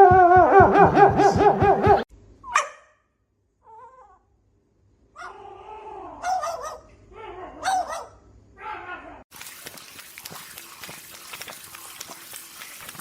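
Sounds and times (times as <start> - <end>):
dog yelping: 5.2 - 8.9.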